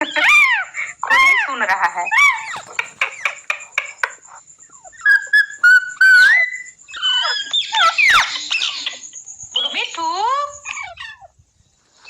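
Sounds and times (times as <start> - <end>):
parrot chirping: 2.0 - 8.3
parrot squawking: 2.2 - 3.9.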